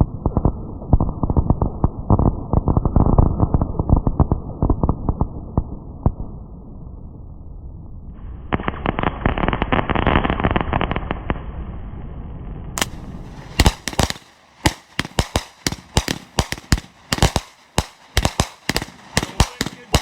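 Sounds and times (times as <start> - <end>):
fireworks crackling: 8.2 - 11.6, 12.8 - 20.0
firework sharp bangs: 12.8 - 20.0.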